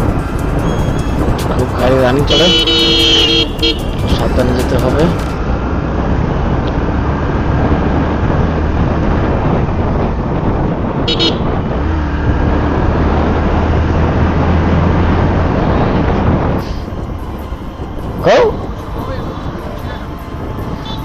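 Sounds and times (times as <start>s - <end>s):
motorcycle engine drone: 0.0s - 21.0s
wind rush: 0.0s - 21.0s
high-pitched horn toot: 0.6s - 1.3s, 2.2s - 4.6s.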